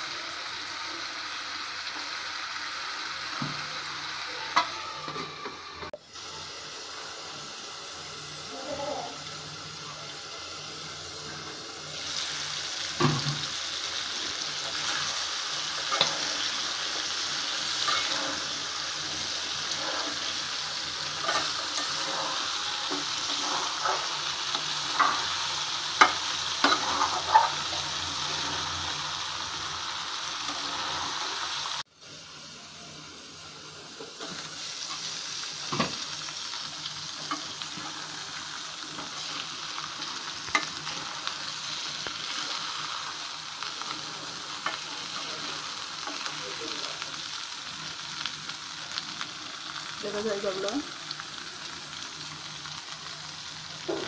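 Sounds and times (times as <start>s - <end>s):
chicken sizzling in a pot: 0.0s - 54.0s
spatula scraping a pot: 17.8s - 18.6s.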